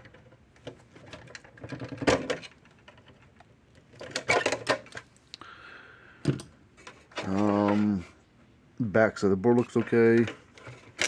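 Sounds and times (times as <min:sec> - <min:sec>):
plastic case clicking and clattering: 0:00.0 - 0:05.1.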